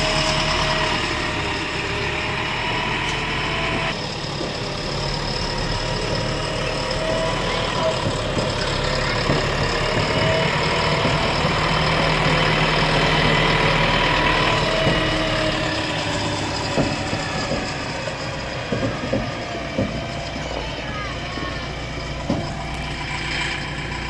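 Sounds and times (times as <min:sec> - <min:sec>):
diesel engine idling: 0:00.0 - 0:24.0
sharp knocks: 0:13.0 - 0:20.7.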